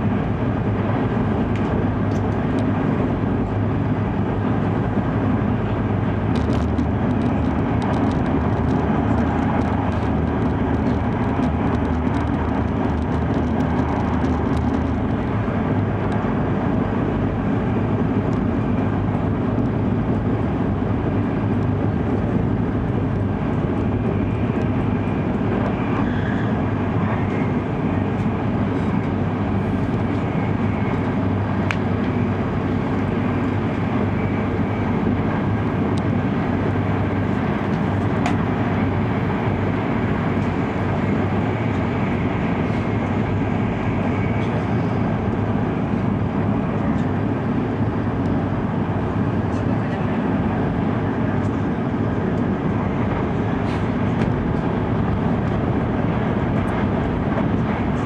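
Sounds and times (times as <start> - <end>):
train cabin low rumble: 0.0 - 58.0.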